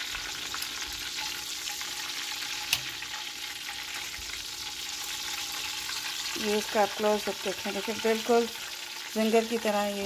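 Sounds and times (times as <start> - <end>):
chicken frying in hot oil: 0.0 - 10.0.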